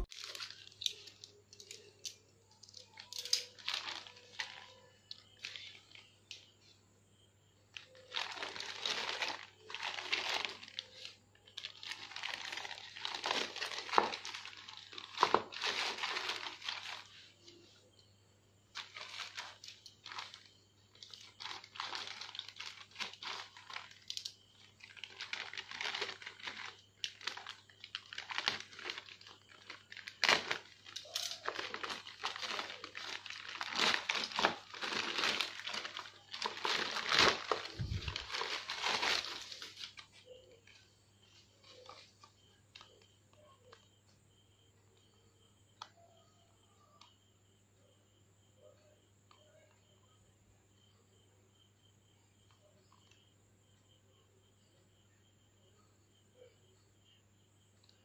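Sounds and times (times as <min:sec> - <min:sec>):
plastic mailer bag crinkling: 0:00.0 - 0:06.1, 0:07.8 - 0:17.7, 0:18.7 - 0:40.8.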